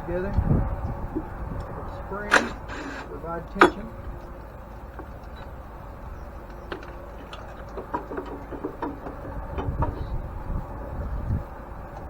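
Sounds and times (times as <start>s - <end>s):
low steady rumble: 0.0s - 12.0s
hand tools and metal parts clinking: 1.2s - 10.1s.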